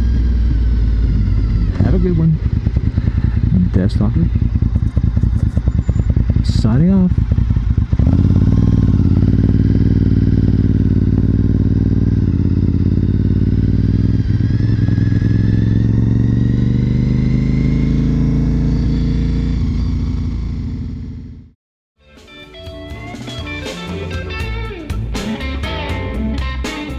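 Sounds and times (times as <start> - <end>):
motorcycle engine accelerating: 0.0 - 21.6.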